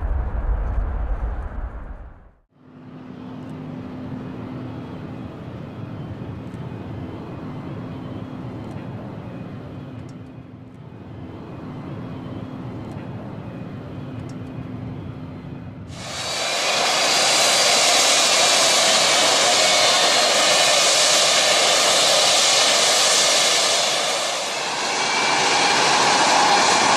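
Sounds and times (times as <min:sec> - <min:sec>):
low hum: 0:00.0 - 0:26.9
distant jet engines rumbling: 0:11.0 - 0:26.9.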